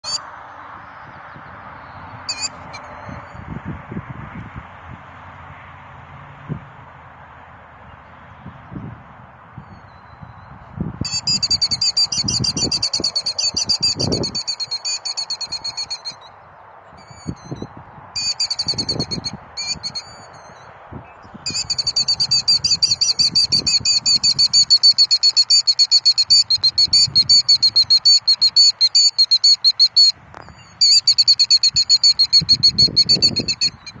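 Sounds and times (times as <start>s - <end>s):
bird calling in fast high trills: 0.0s - 0.2s, 1.9s - 3.4s, 11.0s - 16.4s, 17.0s - 20.6s, 21.4s - 34.0s.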